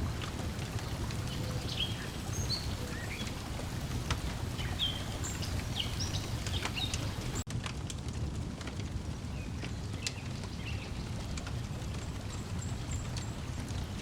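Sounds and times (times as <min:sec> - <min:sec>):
breeze: 0:00.0 - 0:07.4
small birds chirping: 0:00.0 - 0:07.4, 0:09.3 - 0:11.3, 0:11.9 - 0:14.0
water wash: 0:00.0 - 0:07.5
wood fire crackling: 0:00.0 - 0:14.0.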